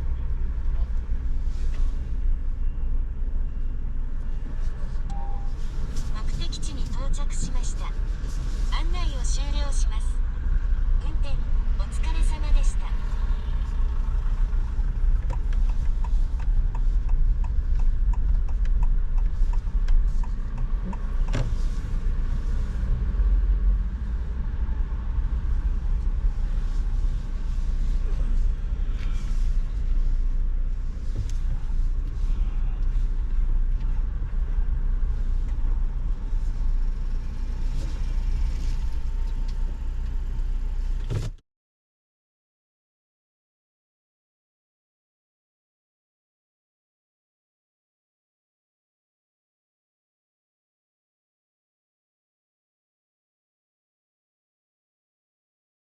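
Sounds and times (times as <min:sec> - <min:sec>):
car engine and road noise: 0:00.0 - 0:41.4.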